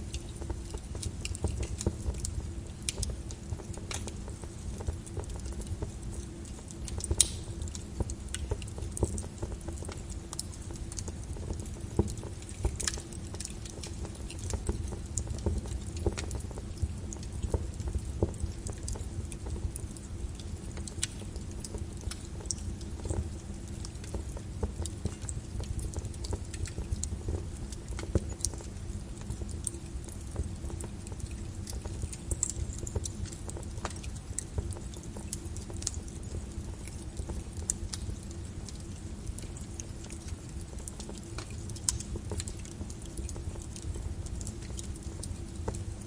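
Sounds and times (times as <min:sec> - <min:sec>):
low rumble of burning: 0:00.0 - 0:46.0
wood fire crackling: 0:00.0 - 0:46.0.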